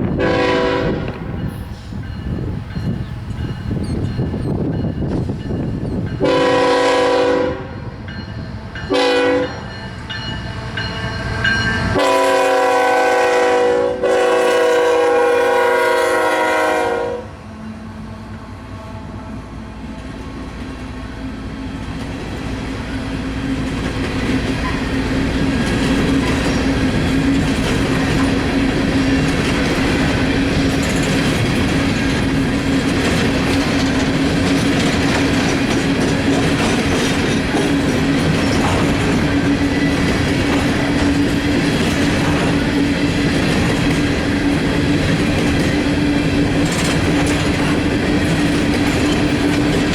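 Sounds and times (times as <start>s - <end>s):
locomotive air horn: 0.2s - 1.4s, 6.2s - 7.8s, 8.9s - 9.7s, 11.9s - 17.4s
train wheels clicking over rail joints: 21.7s - 49.9s.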